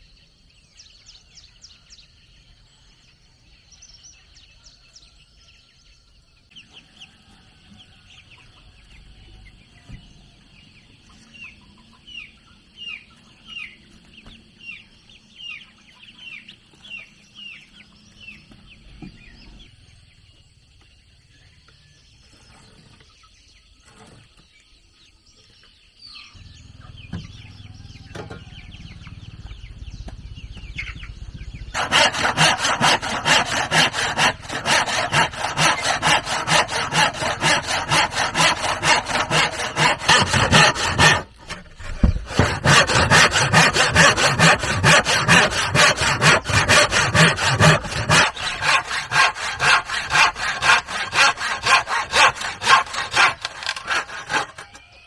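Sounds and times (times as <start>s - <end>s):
low rumbling noise: 29.0s - 31.8s.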